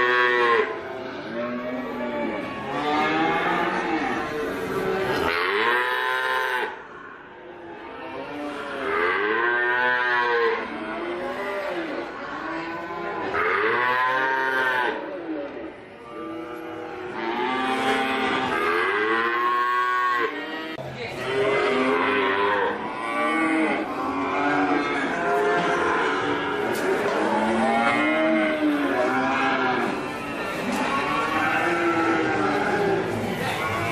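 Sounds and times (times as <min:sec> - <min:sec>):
cattle mooing: 0:00.0 - 0:06.8, 0:16.1 - 0:33.9.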